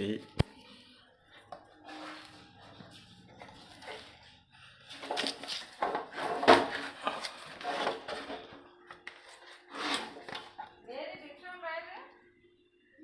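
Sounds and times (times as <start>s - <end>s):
clatter and knocks of device handling: 5.0s - 9.4s.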